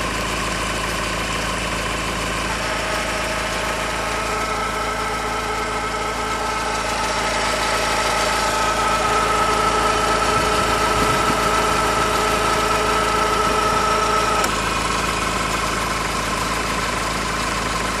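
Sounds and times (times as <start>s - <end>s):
car engine running: 0.0s - 18.0s
high whirring whine: 2.5s - 14.6s.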